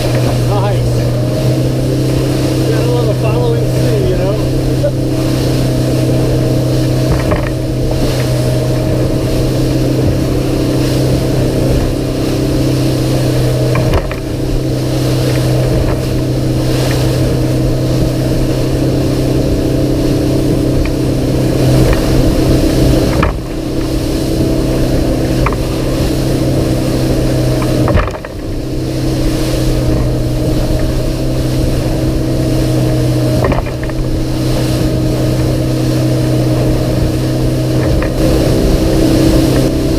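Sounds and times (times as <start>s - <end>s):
outboard engine running: 0.0s - 39.9s
water rushing along hull: 0.0s - 39.9s.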